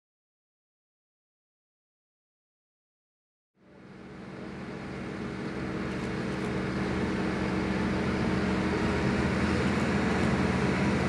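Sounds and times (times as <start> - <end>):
bulldozer engine under load: 3.7 - 11.0.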